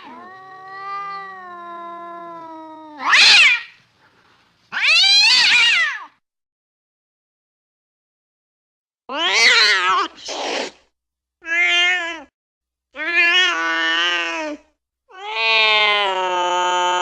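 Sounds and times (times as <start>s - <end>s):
cat yowling: 0.0s - 3.8s, 4.7s - 6.2s, 9.1s - 10.1s, 11.4s - 12.3s, 13.0s - 17.0s.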